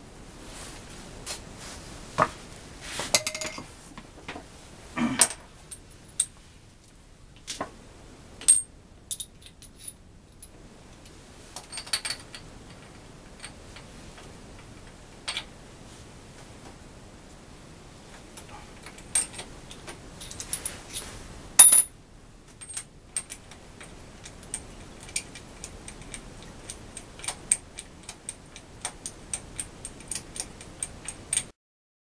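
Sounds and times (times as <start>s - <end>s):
metallic clicks and clinks: 22.6s - 31.5s.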